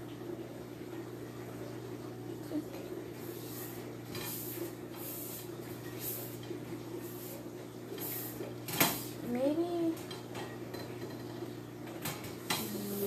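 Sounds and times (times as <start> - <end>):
paintbrush swishing on bowl: 3.2 - 6.4, 7.0 - 8.4.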